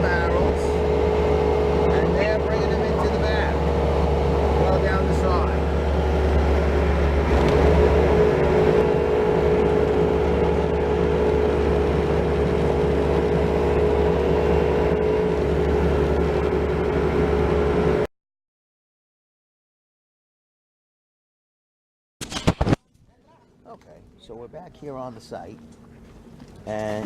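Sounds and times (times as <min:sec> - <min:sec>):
loader engine droning: 0:00.0 - 0:18.1.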